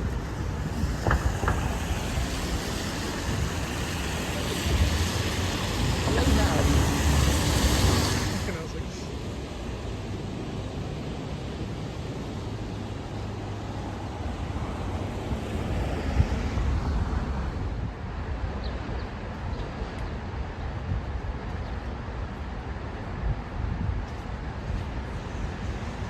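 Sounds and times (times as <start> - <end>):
low vehicle rumble: 0.0 - 10.0.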